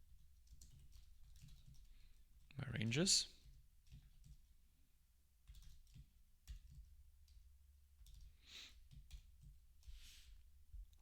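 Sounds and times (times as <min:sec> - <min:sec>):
keyboard typing: 0:00.1 - 0:02.5, 0:03.4 - 0:04.6, 0:05.4 - 0:10.0
soft breath: 0:08.3 - 0:08.8, 0:09.8 - 0:10.4.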